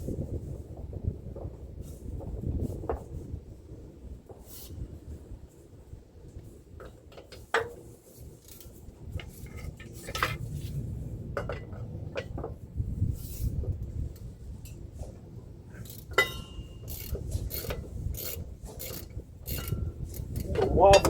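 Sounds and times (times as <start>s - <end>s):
metal tools clinking on bolts: 15.8s - 21.0s.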